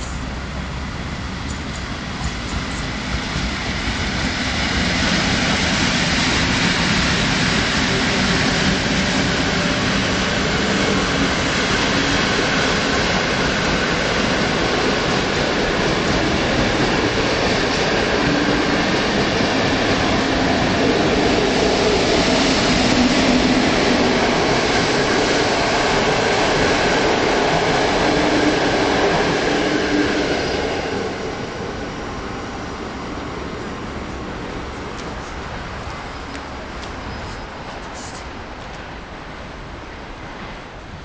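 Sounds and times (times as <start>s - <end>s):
train wheels on rail: 0.0s - 41.0s.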